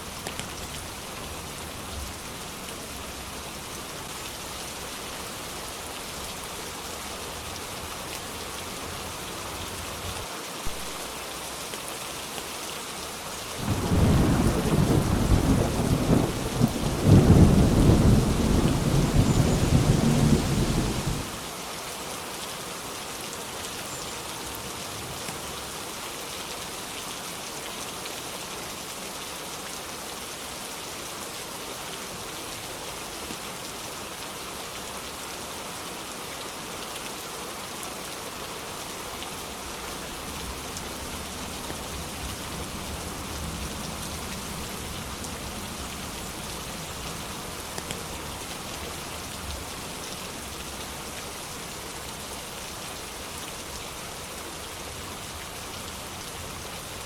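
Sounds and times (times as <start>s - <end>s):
steady rain hiss: 0.0s - 57.0s
distant thunder rumble: 13.6s - 21.3s.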